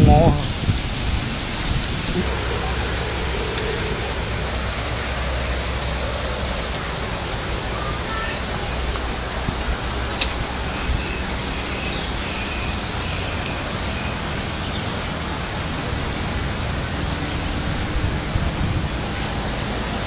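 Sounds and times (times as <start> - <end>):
heavy rain and hail: 0.0 - 20.0
sharp click: 10.2 - 10.4.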